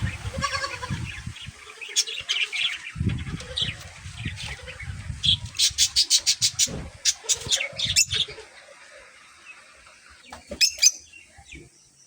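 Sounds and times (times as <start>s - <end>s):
pet birds chirping: 0.0s - 12.0s.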